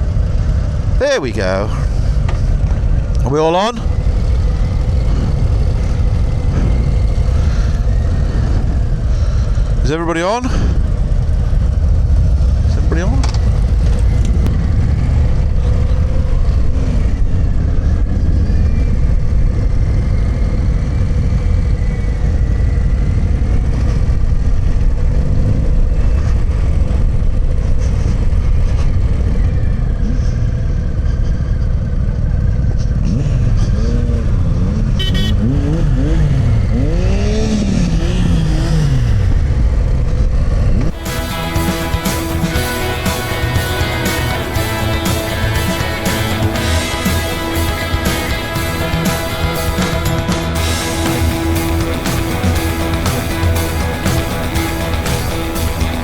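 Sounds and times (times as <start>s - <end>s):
motorcycle engine revving: 0.0s - 56.0s
rock music: 40.9s - 56.0s.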